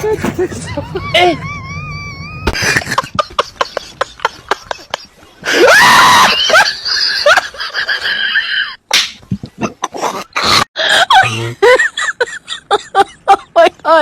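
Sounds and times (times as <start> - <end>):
rising squeals: 0.0 - 2.6
loud scream: 5.5 - 6.6.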